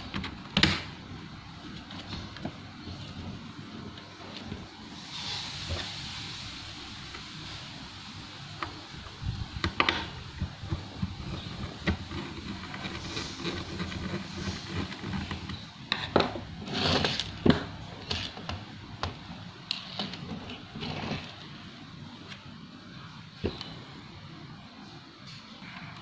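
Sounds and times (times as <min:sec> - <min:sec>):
faint steady hiss: 0:00.0 - 0:16.6.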